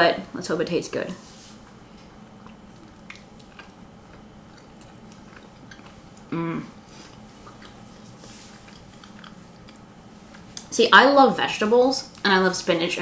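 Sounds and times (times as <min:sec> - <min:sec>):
person chewing: 0:01.5 - 0:10.7
hummed mmm: 0:01.5 - 0:10.8.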